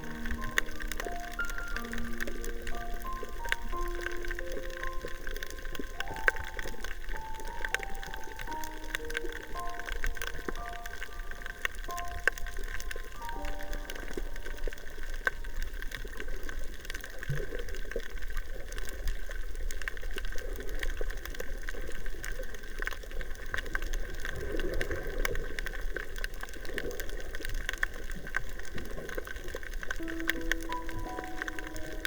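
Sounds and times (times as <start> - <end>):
steady underwater hiss: 0.0 - 16.5
sharp underwater clicks: 0.0 - 18.3, 18.9 - 32.0
gurgling water bubbles: 0.0 - 32.0.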